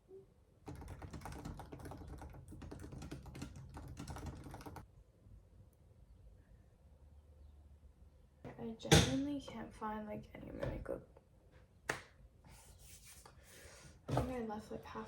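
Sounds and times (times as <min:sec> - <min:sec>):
fast typing on keyboard: 0:00.6 - 0:04.8.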